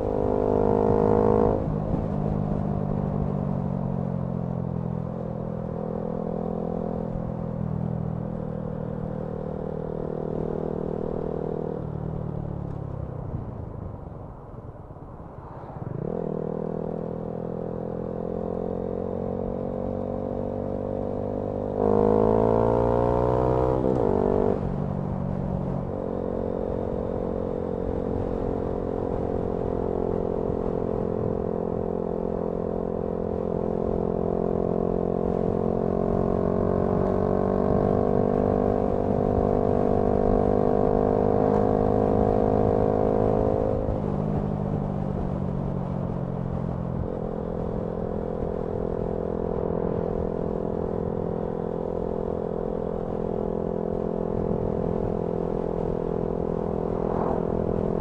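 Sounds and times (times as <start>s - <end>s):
motorcycle engine revving: 16.0s - 24.8s, 48.4s - 58.0s.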